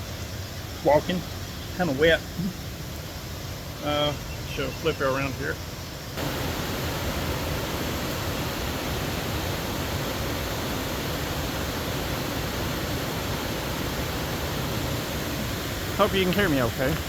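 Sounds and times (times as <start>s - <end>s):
waterfall roaring: 6.2s - 17.0s.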